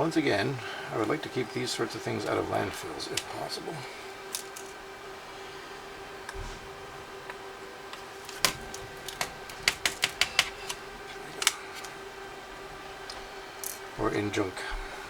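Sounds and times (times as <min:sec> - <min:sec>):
plastic and metal parts clicking: 0:07.9 - 0:11.9.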